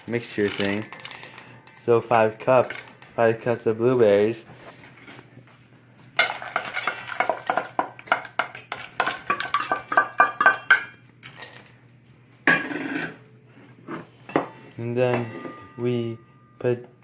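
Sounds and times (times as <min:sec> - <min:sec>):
berries clattering into bowl: 0:00.0 - 0:03.6, 0:06.2 - 0:11.7
bowl ringing: 0:00.0 - 0:04.0, 0:14.4 - 0:17.0.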